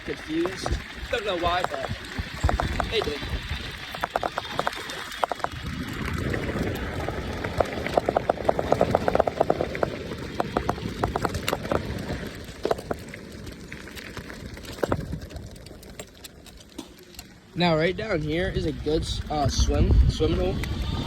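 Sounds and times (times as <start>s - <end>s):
wind on microphone: 0.0s - 12.8s, 18.0s - 21.0s
clicks and rattles: 0.0s - 17.6s
bike tyre noise: 0.0s - 21.0s.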